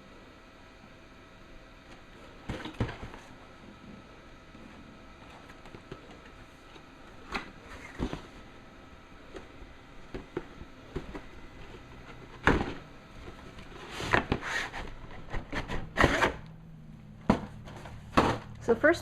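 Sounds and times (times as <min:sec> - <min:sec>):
box scraping and rustling: 0:13.4 - 0:16.4.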